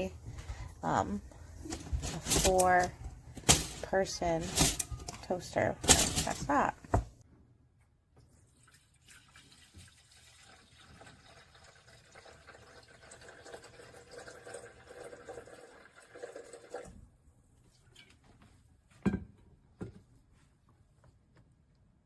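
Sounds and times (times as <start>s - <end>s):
water pouring into a container: 8.4s - 17.0s.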